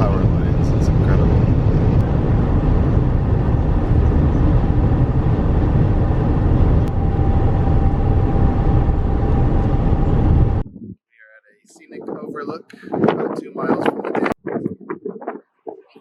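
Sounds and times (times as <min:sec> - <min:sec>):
car road noise: 0:00.0 - 0:10.8
faint steady hum: 0:01.9 - 0:10.6.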